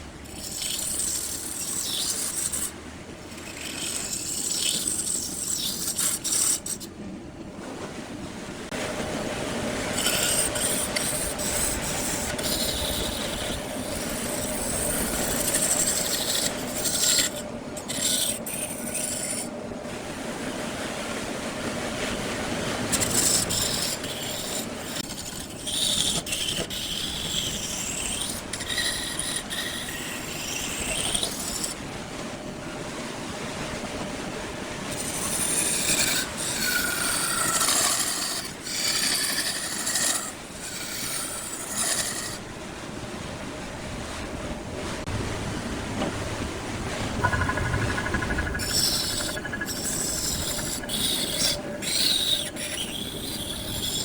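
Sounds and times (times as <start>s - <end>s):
lathe tool scraping wood: 0.3s - 2.7s, 3.4s - 6.9s, 10.0s - 19.5s, 22.8s - 31.8s, 34.9s - 42.4s, 47.1s - 54.0s
high-pitched squeals: 47.1s - 54.0s.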